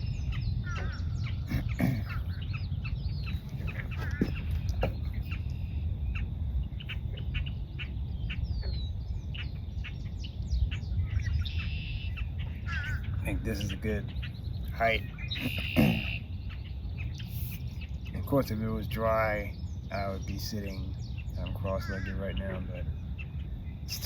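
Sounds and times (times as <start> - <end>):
marsh birds calling: 0.0 - 24.0
steady low rumble: 0.0 - 24.0.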